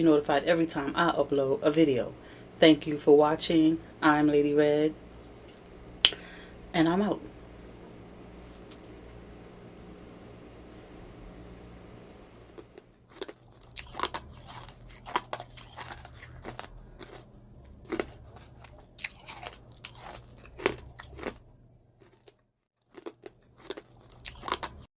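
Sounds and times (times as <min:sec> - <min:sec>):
person chewing crunchy food: 0:12.6 - 0:21.4, 0:22.0 - 0:24.9.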